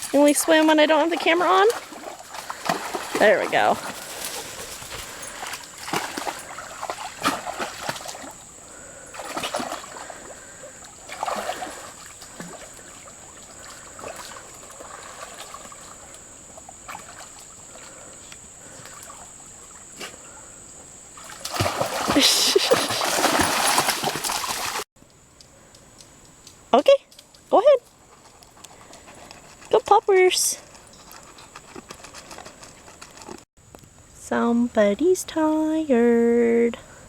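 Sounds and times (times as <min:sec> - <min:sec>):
dog splashing in shallow water: 0:00.0 - 0:08.4, 0:09.1 - 0:16.2, 0:16.8 - 0:18.0, 0:21.2 - 0:24.9.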